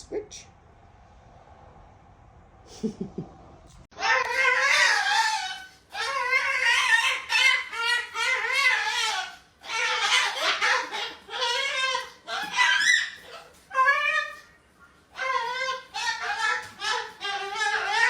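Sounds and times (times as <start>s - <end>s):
parrot chattering: 4.0s - 14.3s, 15.2s - 18.0s.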